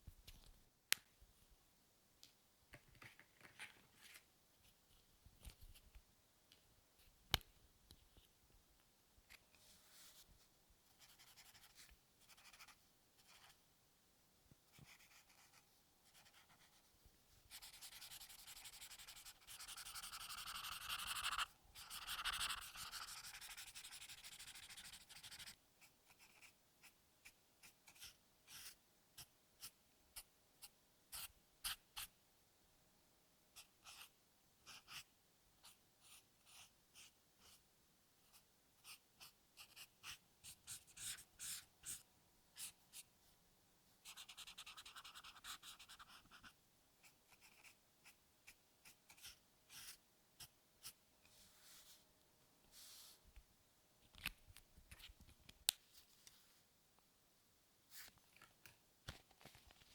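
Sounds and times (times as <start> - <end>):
pencil shading on paper: 14.7 - 16.8, 17.5 - 28.8, 38.8 - 42.0, 44.1 - 46.5.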